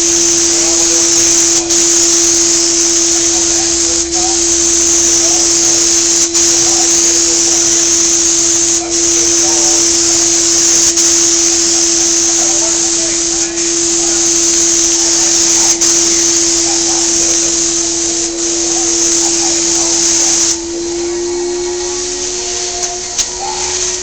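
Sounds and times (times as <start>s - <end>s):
high hiss of spray: 0.0s - 24.0s
spray equipment motor whine: 0.0s - 24.0s.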